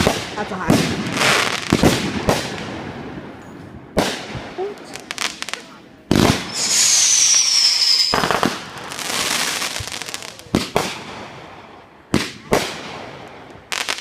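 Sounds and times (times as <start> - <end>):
firework crackling: 0.0 - 3.2, 4.0 - 14.0
firework bangs: 0.0 - 14.0
firework whistle: 6.4 - 8.6.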